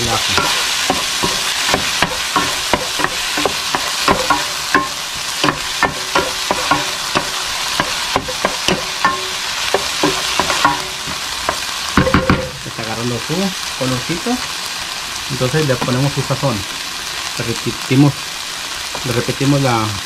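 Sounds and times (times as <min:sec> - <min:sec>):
vegetables sizzling in oil: 0:00.0 - 0:20.0
wooden spoon scraping pan: 0:00.1 - 0:12.5.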